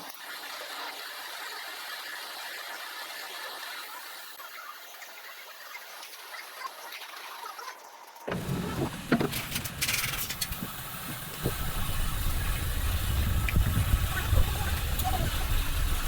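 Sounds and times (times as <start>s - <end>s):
sharp knocks and clicks: 8.3s - 12.5s
machine rumbling: 8.3s - 16.0s.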